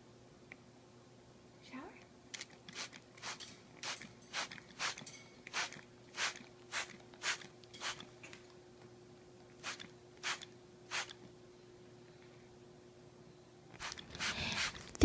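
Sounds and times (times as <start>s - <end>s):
spray bottle squirts: 13.8s - 15.0s.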